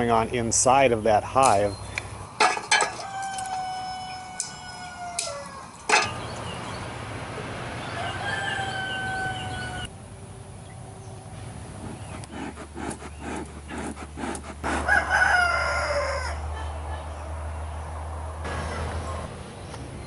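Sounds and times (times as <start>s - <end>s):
rooster crowing: 2.4s - 6.3s, 7.8s - 9.9s, 14.6s - 17.3s.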